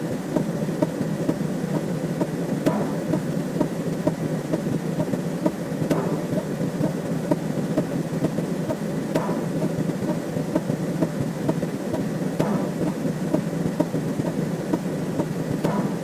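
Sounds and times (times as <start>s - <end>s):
sharp click: 7.3s - 9.5s, 10.1s - 16.0s.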